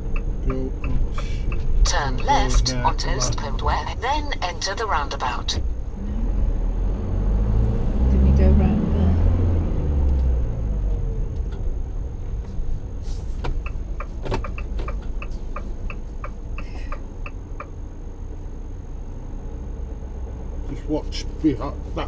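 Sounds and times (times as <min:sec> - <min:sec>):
turn indicator ticking: 0:00.0 - 0:05.8, 0:11.3 - 0:17.9
engine and road rumble: 0:00.0 - 0:22.0.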